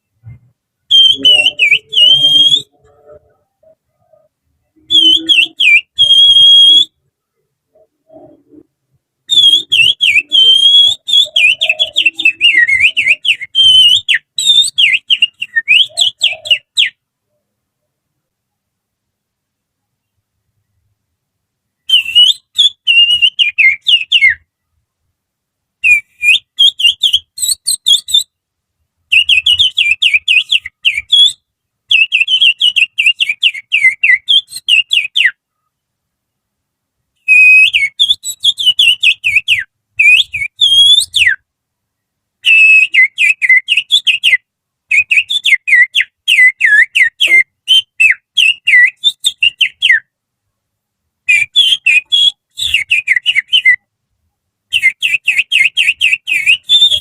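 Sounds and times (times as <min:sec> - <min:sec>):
person whistling bird song: 0:00.9 - 0:07.0, 0:09.3 - 0:17.0, 0:21.9 - 0:24.4, 0:25.8 - 0:28.4, 0:29.1 - 0:35.4, 0:37.2 - 0:41.4, 0:42.4 - 0:50.1, 0:51.3 - 0:53.9, 0:54.7 - 0:57.0.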